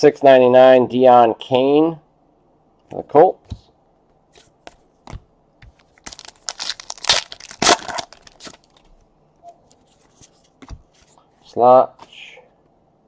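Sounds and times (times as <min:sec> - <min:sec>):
wrapper crinkling and tearing: 0:06.0 - 0:08.8.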